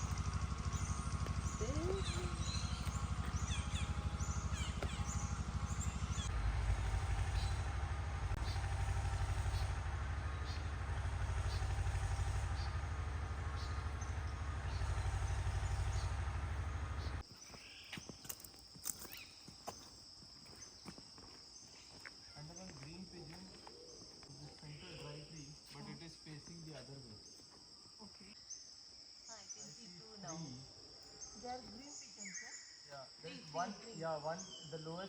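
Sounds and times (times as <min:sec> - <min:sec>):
small bird chirping: 0:00.0 - 0:06.3, 0:17.0 - 0:19.9
vehicle engine pulsing: 0:00.0 - 0:17.2.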